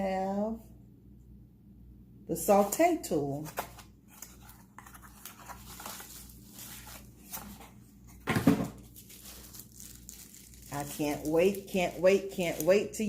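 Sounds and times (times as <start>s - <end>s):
plastic packaging crinkling: 3.5s - 13.0s.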